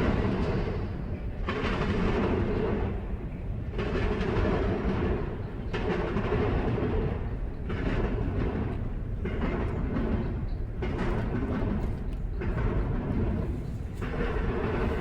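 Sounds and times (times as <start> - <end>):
freight train cars rolling past: 0.0 - 15.0.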